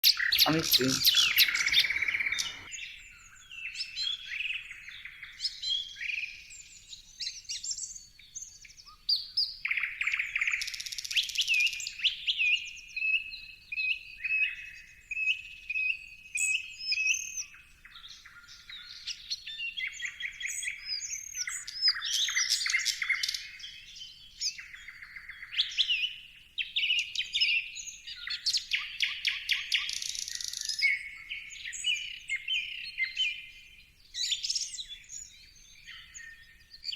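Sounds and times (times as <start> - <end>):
birds chirping and trilling: 0.0 - 2.7.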